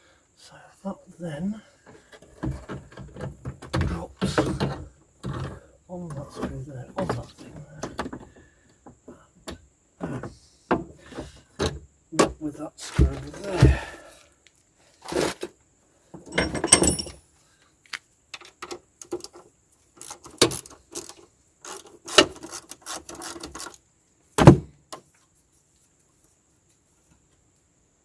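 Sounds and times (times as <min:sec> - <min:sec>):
parts knocking and rattling: 0:01.9 - 0:14.0, 0:16.2 - 0:17.2, 0:18.4 - 0:23.8.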